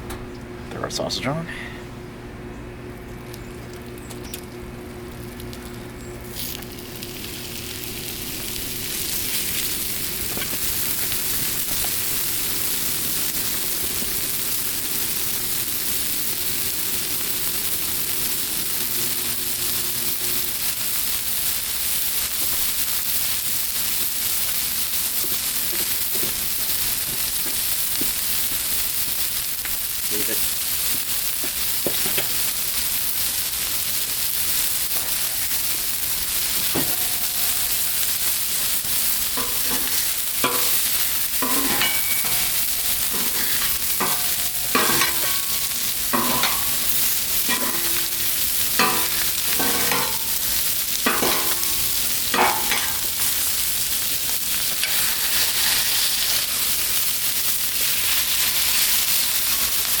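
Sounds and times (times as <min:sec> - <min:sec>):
sausage sizzling on a griddle: 0:03.2 - 1:00.0
metallic clinks and scrapes: 0:39.4 - 0:53.3.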